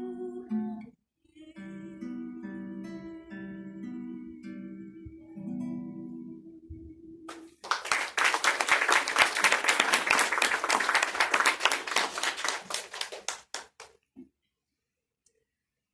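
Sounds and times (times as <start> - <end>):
audience clapping: 7.3 - 14.0.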